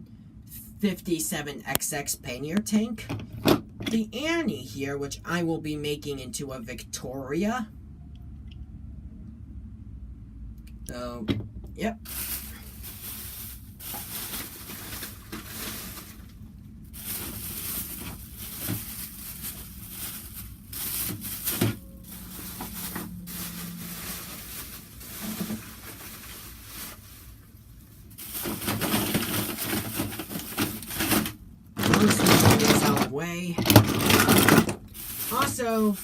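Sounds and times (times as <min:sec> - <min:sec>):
faint low hum: 0:00.0 - 0:36.0
toys and packaging rustling: 0:12.0 - 0:36.0.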